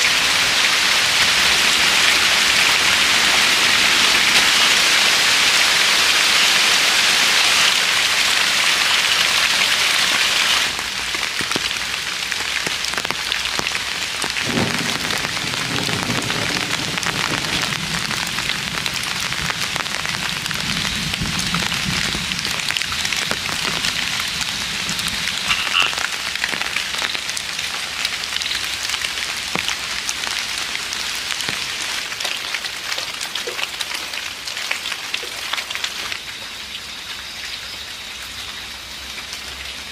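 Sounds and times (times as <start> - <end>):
steady rain hiss: 0.0 - 39.9
water drips ticking: 10.7 - 39.9.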